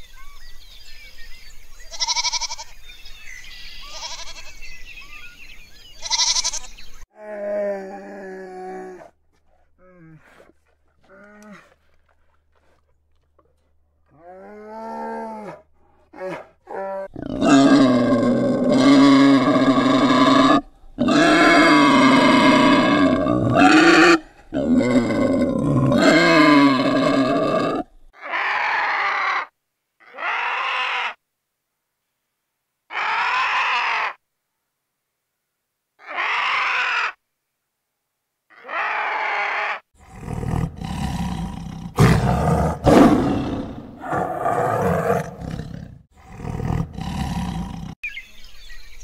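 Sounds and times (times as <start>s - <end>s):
wild boar squealing grunts: 14.1s - 31.2s, 32.9s - 34.2s, 36.0s - 37.2s, 38.5s - 48.0s.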